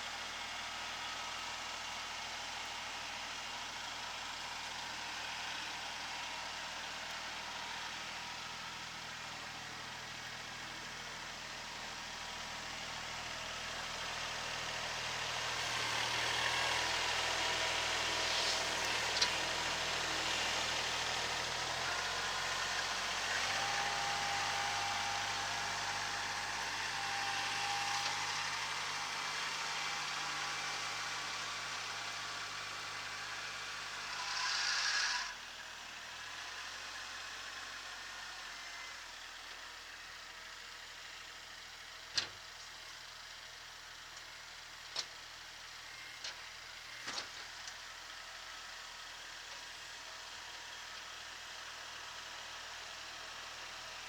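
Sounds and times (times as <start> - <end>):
tractor diesel engine running: 2.7 - 34.0.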